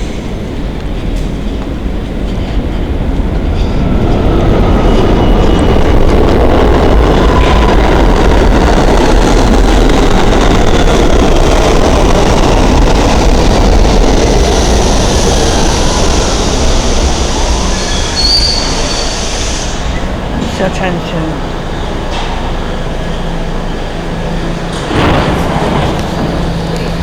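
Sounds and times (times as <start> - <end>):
train wheels clattering on rail: 0.0 - 20.9, 21.8 - 27.0
high wheel squeals: 15.5 - 20.2.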